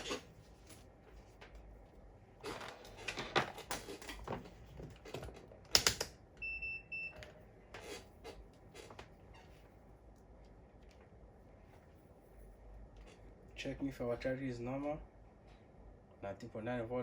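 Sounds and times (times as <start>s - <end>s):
objects clattering on workbench: 2.4s - 6.0s.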